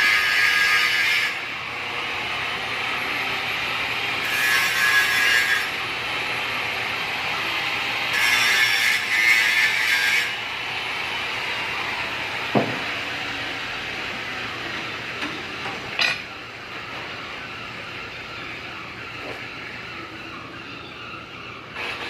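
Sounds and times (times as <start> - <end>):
steady background hum: 0.0 - 22.0
knock on workshop surface: 12.5 - 12.8.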